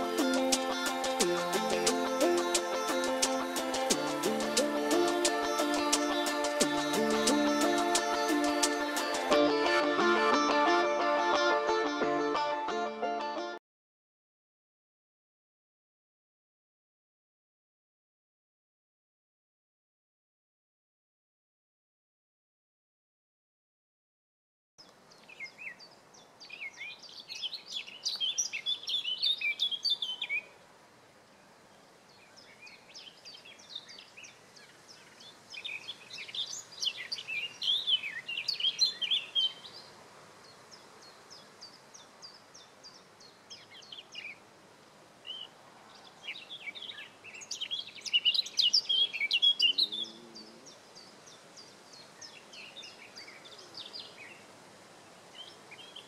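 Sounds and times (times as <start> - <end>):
songbird twittering song: 0.0 - 9.3, 24.8 - 30.6, 31.3 - 56.0.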